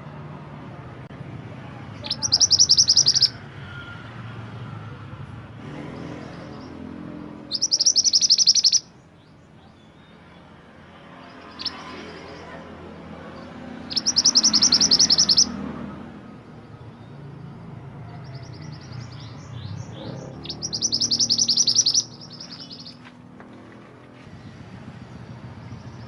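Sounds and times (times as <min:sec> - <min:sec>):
bird high trills: 0:02.0 - 0:03.4, 0:07.4 - 0:08.9, 0:13.8 - 0:15.6, 0:18.3 - 0:23.1.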